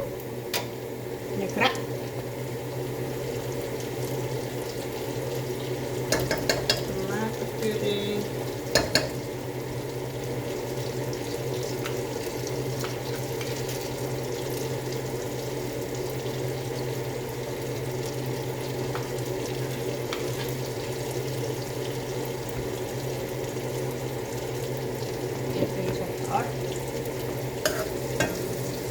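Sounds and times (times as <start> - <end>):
food sizzling in a frying pan: 0.0 - 28.9
spoon clicking against pan: 6.1 - 6.8, 8.7 - 9.2.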